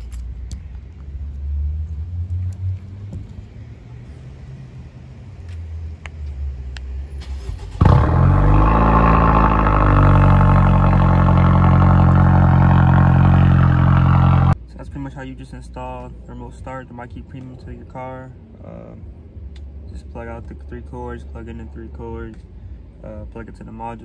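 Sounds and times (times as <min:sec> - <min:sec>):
car engine starting and idling: 0:07.0 - 0:14.6.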